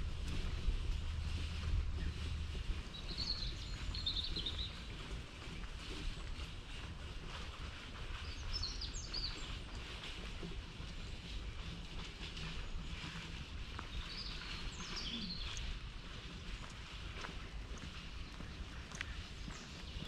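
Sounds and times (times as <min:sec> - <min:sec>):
low outdoor rumble: 0:00.0 - 0:20.0
birds chirping: 0:01.8 - 0:05.1, 0:08.2 - 0:09.9, 0:13.8 - 0:15.8, 0:17.6 - 0:20.0.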